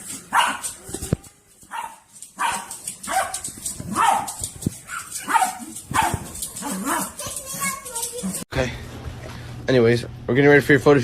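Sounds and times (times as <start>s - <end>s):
dog barking: 0.3s - 0.8s, 1.7s - 7.2s.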